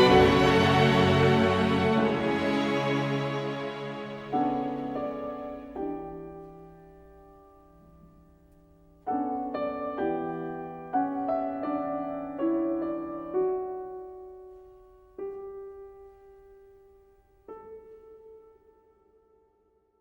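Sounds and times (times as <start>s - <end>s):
slow solo piano: 4.2s - 19.4s.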